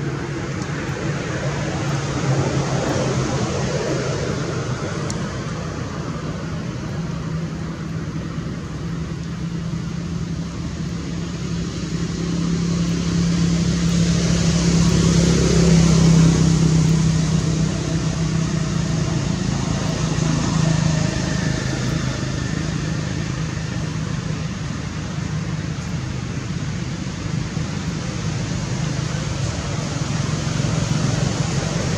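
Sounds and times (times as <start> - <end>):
vehicle engine passing by: 0.0 - 7.2, 9.8 - 31.9.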